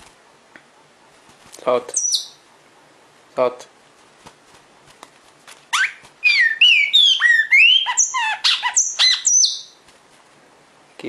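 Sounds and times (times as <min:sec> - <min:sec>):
bird giving sharp whistled calls: 0:01.9 - 0:02.4, 0:05.8 - 0:09.8.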